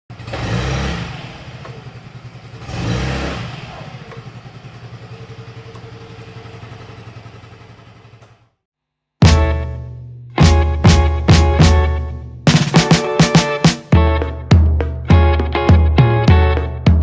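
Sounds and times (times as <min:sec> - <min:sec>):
scooter engine revving and idling: 0:00.1 - 0:08.7.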